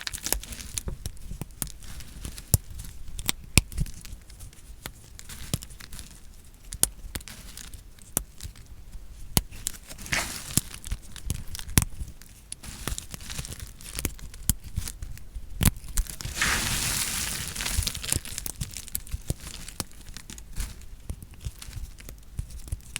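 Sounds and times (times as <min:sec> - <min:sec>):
crumbling scrape: 0:16.0 - 0:19.8.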